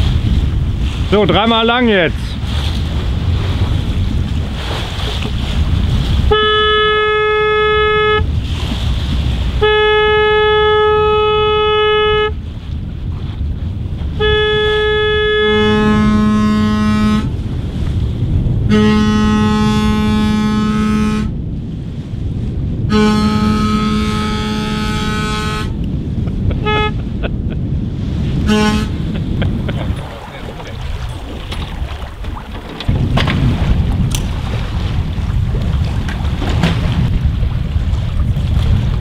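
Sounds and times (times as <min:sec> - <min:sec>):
wind rumble on microphone: 0:00.0 - 0:39.0
boat horn blasts: 0:06.1 - 0:08.4, 0:09.4 - 0:12.5, 0:14.1 - 0:17.4, 0:18.5 - 0:21.4, 0:22.8 - 0:27.2, 0:28.0 - 0:29.3
deeper boat horn blasts: 0:06.1 - 0:08.4, 0:09.4 - 0:12.4, 0:14.0 - 0:17.4, 0:18.4 - 0:21.4, 0:22.7 - 0:27.3, 0:28.0 - 0:29.3.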